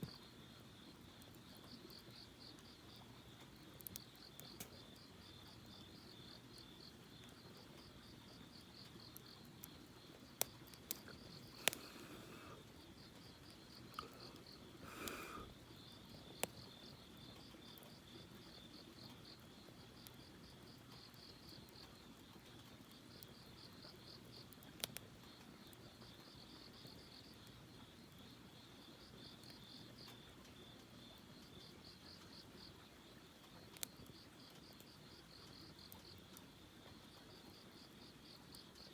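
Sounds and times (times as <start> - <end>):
campfire wood popping: 0.0 - 26.1
crickets chirping: 0.1 - 24.5, 25.2 - 38.9.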